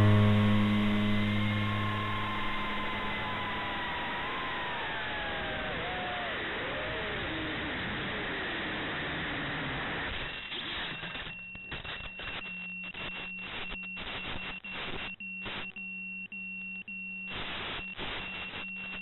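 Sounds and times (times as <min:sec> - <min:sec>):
low hum: 0:00.0 - 0:06.7
rushing noise: 0:00.0 - 0:06.8
crackling static: 0:00.0 - 0:15.8, 0:17.3 - 0:19.0.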